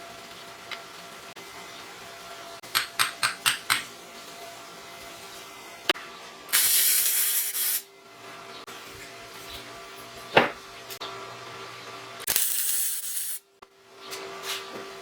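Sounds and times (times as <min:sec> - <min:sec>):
hiss: 0:06.5 - 0:07.9, 0:12.3 - 0:13.4.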